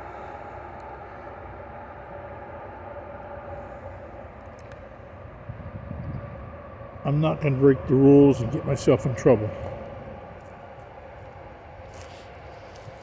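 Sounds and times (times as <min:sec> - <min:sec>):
distant highway traffic drone: 0:00.0 - 0:13.0
faint rustles: 0:09.6 - 0:13.0.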